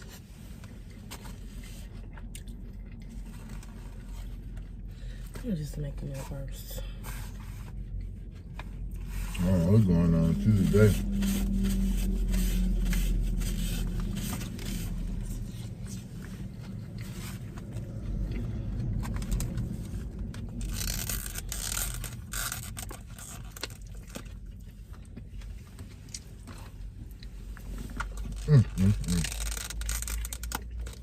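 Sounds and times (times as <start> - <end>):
low steady rumble: 0.0 - 31.0
plastic packaging rustling: 27.8 - 31.0.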